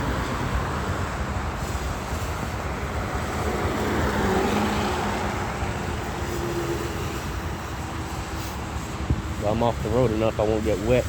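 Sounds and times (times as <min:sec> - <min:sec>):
traffic engine noise: 0:00.0 - 0:11.0
tyre hiss on wet road: 0:00.0 - 0:11.0
vehicle passing by: 0:02.1 - 0:07.2.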